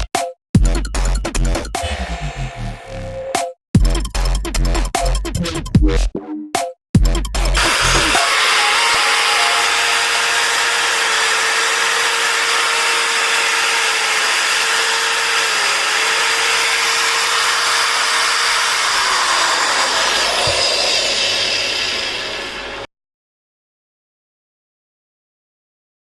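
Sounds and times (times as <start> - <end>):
cutter motor running and spinning down: 7.6 - 22.9.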